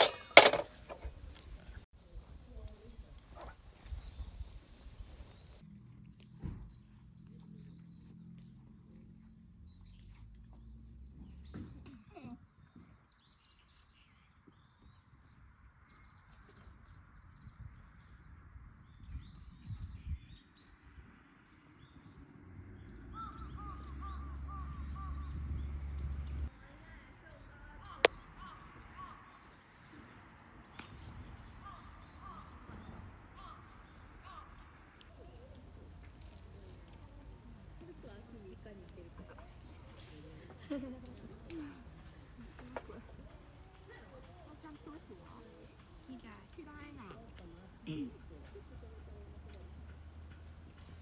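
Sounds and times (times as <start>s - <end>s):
horse moving about: 0.0s - 11.9s
small birds chirping: 0.0s - 32.6s, 35.0s - 51.0s.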